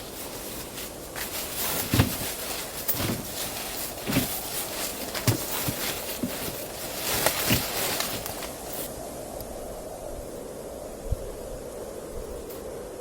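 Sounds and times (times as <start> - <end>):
footsteps crunching in snow: 0.0 - 8.9
steady hiss: 0.0 - 13.0.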